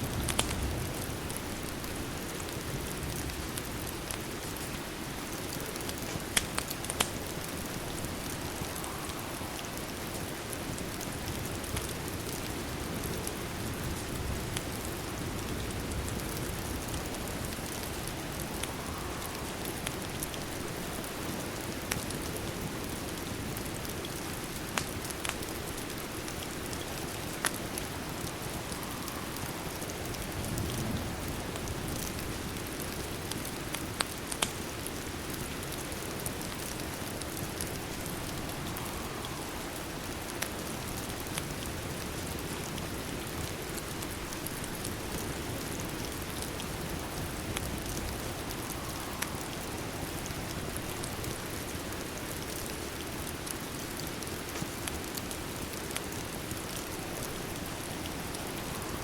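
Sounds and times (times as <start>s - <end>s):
steady rain: 0.0s - 59.0s
wood fire crackling: 0.0s - 59.0s
sharp pops of fire: 0.2s - 0.6s, 5.7s - 7.2s.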